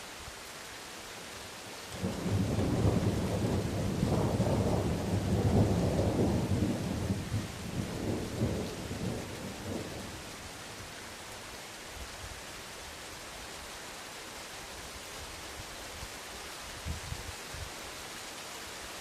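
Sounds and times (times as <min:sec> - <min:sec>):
rain hissing: 0:00.0 - 0:19.0
thunder rumbling: 0:02.0 - 0:10.3.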